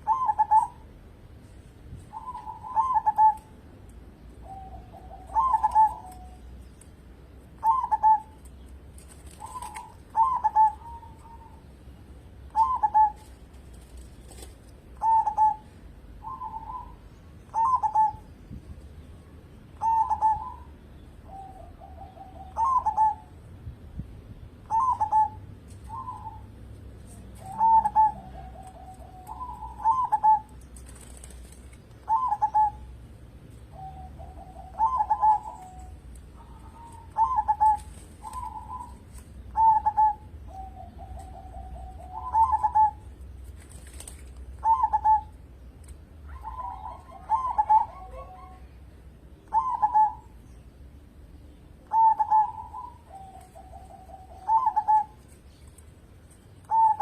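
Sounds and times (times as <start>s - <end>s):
dove cooing: 0.0s - 0.9s, 2.1s - 3.6s, 4.3s - 6.5s, 7.6s - 11.7s, 12.5s - 18.3s, 19.8s - 23.4s, 24.6s - 26.6s, 27.3s - 31.3s, 32.0s - 33.0s, 33.6s - 43.3s, 44.5s - 45.5s, 46.2s - 48.8s, 49.4s - 50.4s, 51.8s - 55.6s, 56.6s - 57.0s.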